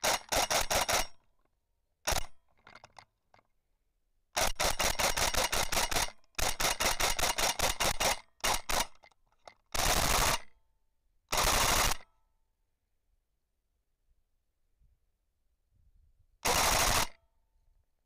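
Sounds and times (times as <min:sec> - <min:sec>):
airsoft rifle firing bursts: 0:00.0 - 0:01.2, 0:02.1 - 0:02.4, 0:04.4 - 0:09.0, 0:09.8 - 0:10.5, 0:11.3 - 0:12.1, 0:16.4 - 0:17.2.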